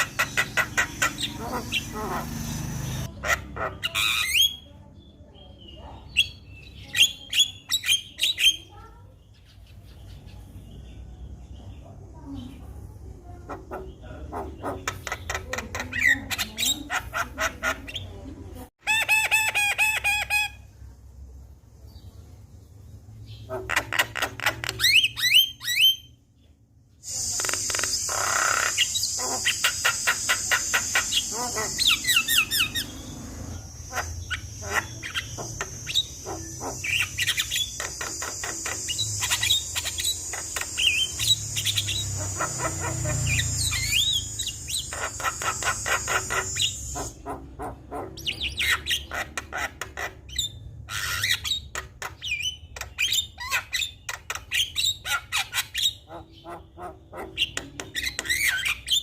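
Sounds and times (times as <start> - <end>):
high-pitched insect-like buzz: 34.8 - 47.0.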